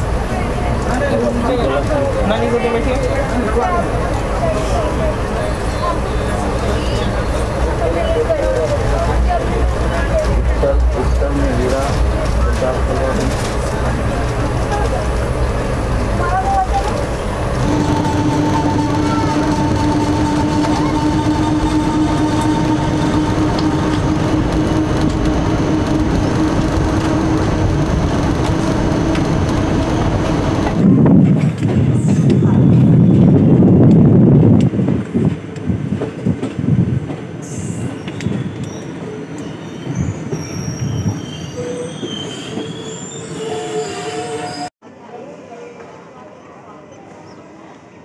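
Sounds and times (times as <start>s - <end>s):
train running on track: 0.0s - 48.0s
steady hum: 17.2s - 30.8s
high wheel squeals: 17.6s - 30.7s, 37.4s - 44.7s.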